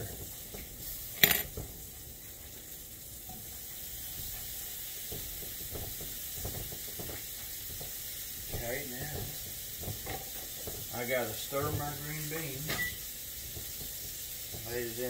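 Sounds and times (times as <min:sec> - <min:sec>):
meat sizzling in skillet: 0:00.0 - 0:15.0.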